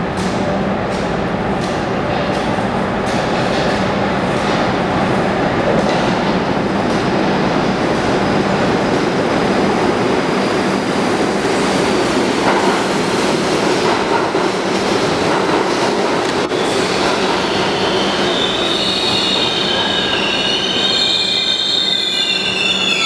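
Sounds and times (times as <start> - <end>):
train wheels rumbling on rails: 0.0 - 23.0
high wheel squeal: 16.5 - 23.0.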